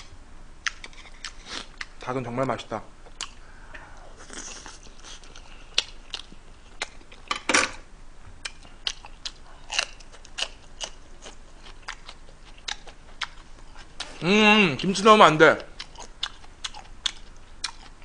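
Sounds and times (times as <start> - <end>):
chewing with crunching: 0.6 - 2.0, 3.1 - 3.4, 4.2 - 7.3, 8.4 - 14.2, 15.6 - 18.0.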